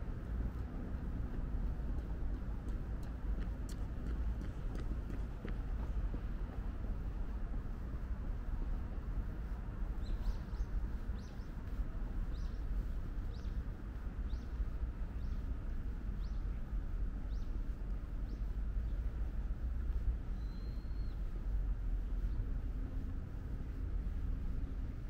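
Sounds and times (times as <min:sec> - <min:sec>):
steady low rumble: 0:00.0 - 0:25.0
bird chirping: 0:10.0 - 0:11.5, 0:20.4 - 0:21.2.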